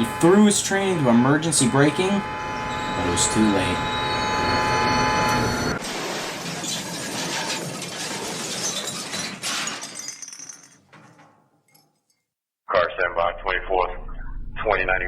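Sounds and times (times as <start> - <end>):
high-pitched train brake squeal: 0.0 - 5.8
train crashing: 0.1 - 11.4
glass shattering: 5.8 - 12.0.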